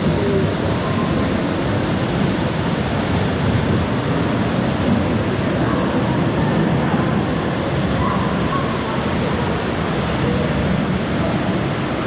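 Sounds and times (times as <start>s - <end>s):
falling and splashing water: 0.0s - 12.0s.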